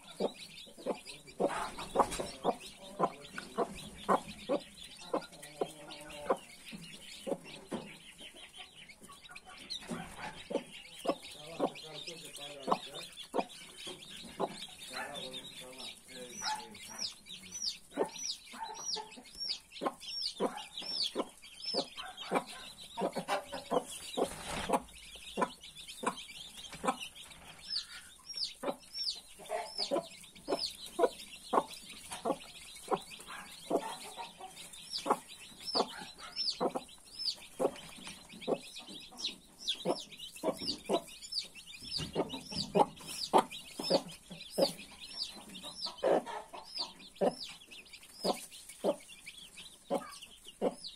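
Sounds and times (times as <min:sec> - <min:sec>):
chicks peeping: 0:00.0 - 0:50.9
hen clucking: 0:00.0 - 0:50.9.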